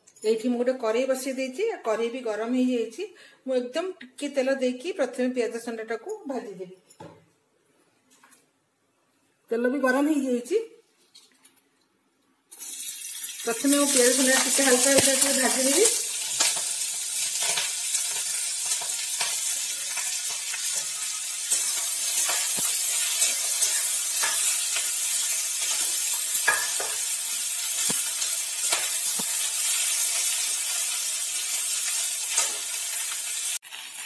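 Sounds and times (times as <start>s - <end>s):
stalks sizzling in hot oil: 12.5s - 34.0s
metal spatula scraping wok: 17.4s - 30.4s.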